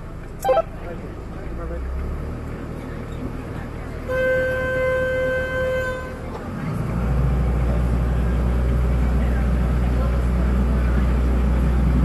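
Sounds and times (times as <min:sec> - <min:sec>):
boat engine rumble: 0:00.0 - 0:12.0
boat horn blast: 0:00.4 - 0:00.8, 0:04.1 - 0:06.2.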